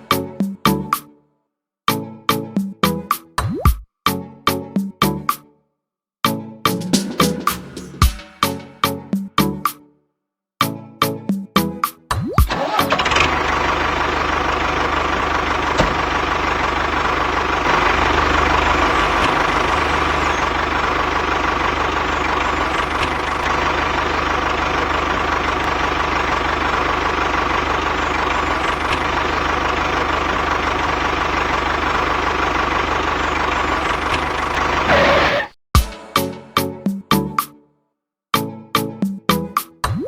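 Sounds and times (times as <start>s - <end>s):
small engine running: 12.5s - 35.4s.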